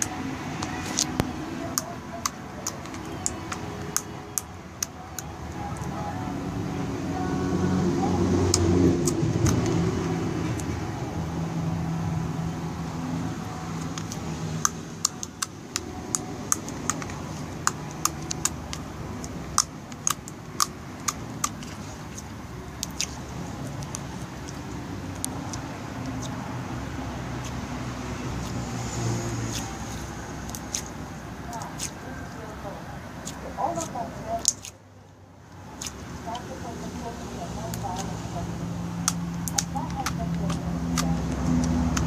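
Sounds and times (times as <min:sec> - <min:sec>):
slime clicking and popping: 0:00.0 - 0:05.3, 0:13.8 - 0:22.2, 0:22.8 - 0:24.6, 0:29.5 - 0:31.0, 0:33.2 - 0:34.8, 0:35.8 - 0:36.0, 0:39.0 - 0:42.0.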